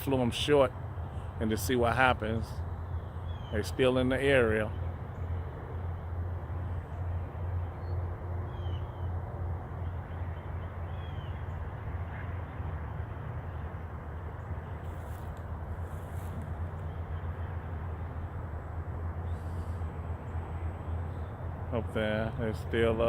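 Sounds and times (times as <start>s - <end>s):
bird chirps: 3.0s - 3.6s, 7.8s - 9.1s.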